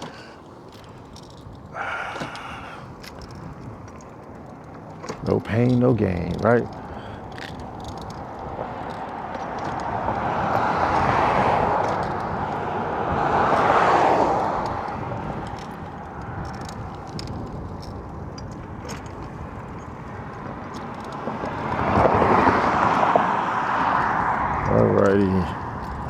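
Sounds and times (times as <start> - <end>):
wind on microphone: 6.2 - 26.0.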